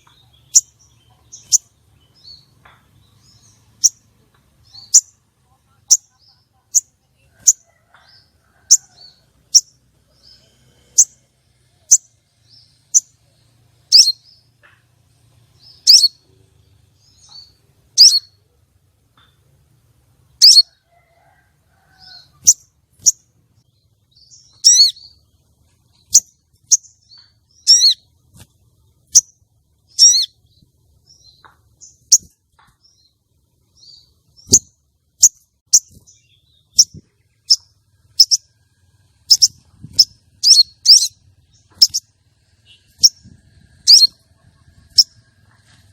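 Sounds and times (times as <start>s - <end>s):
sunbird calling: 0.0s - 11.2s, 17.0s - 18.6s, 20.4s - 20.8s, 21.8s - 25.3s, 25.9s - 28.2s, 28.8s - 33.0s, 33.8s - 45.2s
bird trilled notes: 26.1s - 28.1s, 29.0s - 30.4s.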